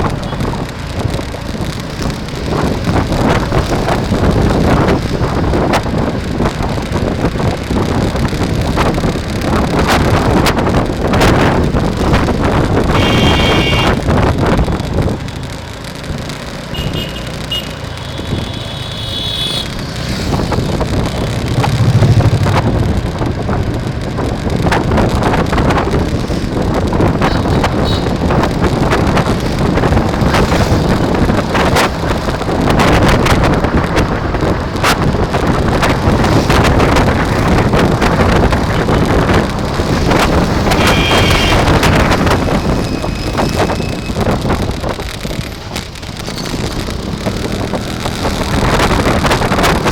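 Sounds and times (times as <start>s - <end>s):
wind rushing over microphone: 0.0s - 16.6s, 17.8s - 49.9s.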